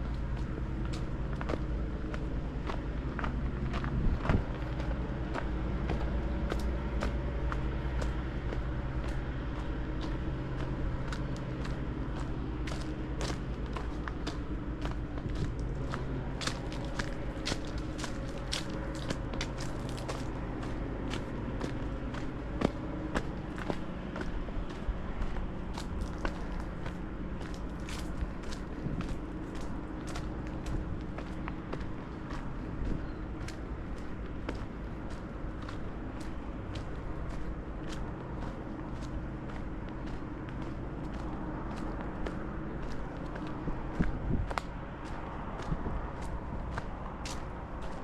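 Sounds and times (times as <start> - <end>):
footsteps on a path: 0.0 - 48.0
steady low hum: 0.0 - 48.0.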